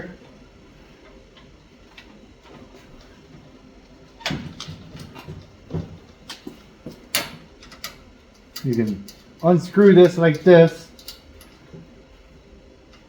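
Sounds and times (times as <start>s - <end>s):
clicks and knocks of cable fittings: 10.3s - 11.8s.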